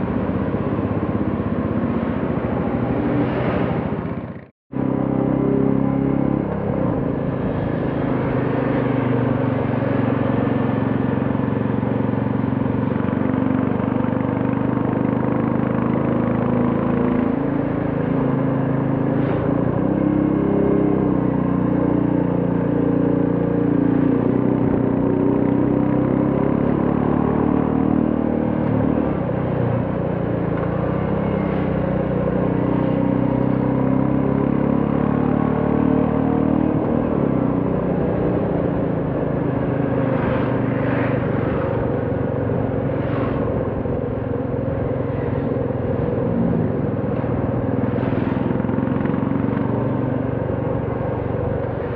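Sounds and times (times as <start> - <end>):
road noise: 0.0 - 51.9
motorcycle engine running: 28.0 - 51.9.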